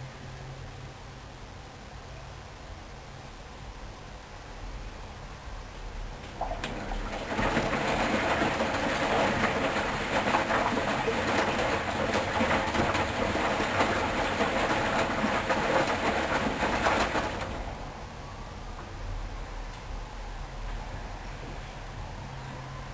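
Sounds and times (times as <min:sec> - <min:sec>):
laundry and water sloshing: 0:06.1 - 0:18.2
washing machine drum turning: 0:06.2 - 0:18.0.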